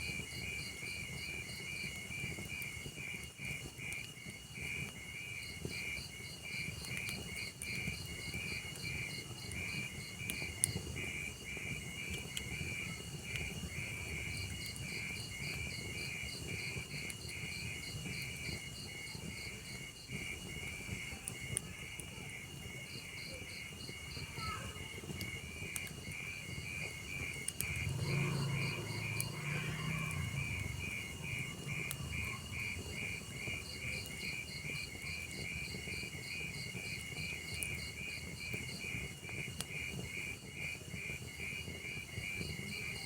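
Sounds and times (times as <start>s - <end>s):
crickets chirping: 0.0s - 43.0s
log fire crackling: 0.0s - 43.0s
burning wood popping: 5.7s - 18.7s, 24.8s - 42.6s.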